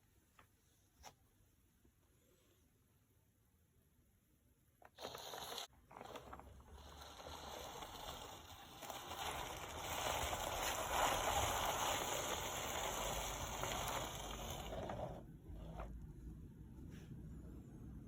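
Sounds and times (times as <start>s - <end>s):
marbles rolling down wooden ramp: 5.0s - 15.2s.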